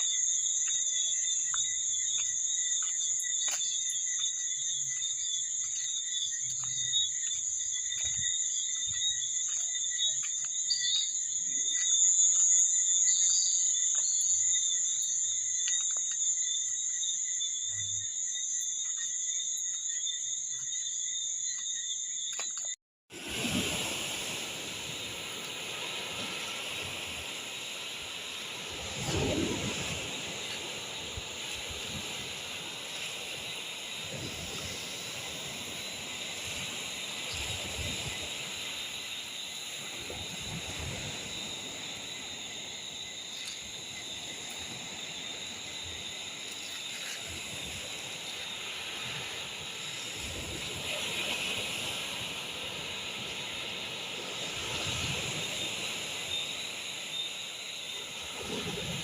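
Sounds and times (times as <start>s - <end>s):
high-pitched night insects chorus: 0.0s - 59.0s.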